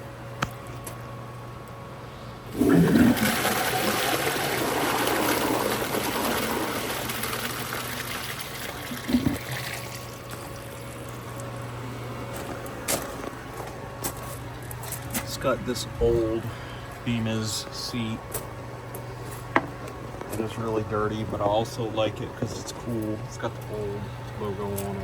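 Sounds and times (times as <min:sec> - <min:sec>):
toilet flush water rush: 0:02.5 - 0:11.1.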